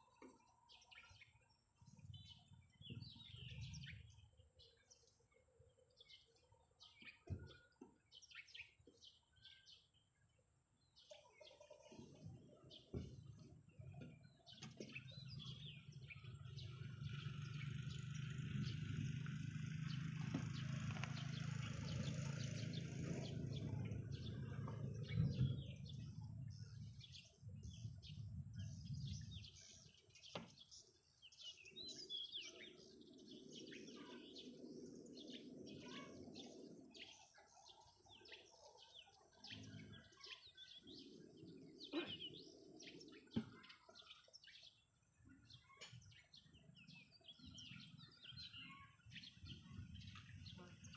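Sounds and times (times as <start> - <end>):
birds chirping: 0.0 - 50.9.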